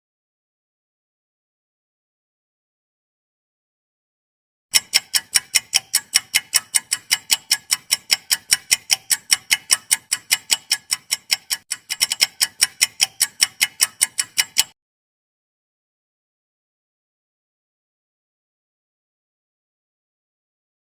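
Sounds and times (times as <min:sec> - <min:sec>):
clock ticking: 0:04.7 - 0:14.8.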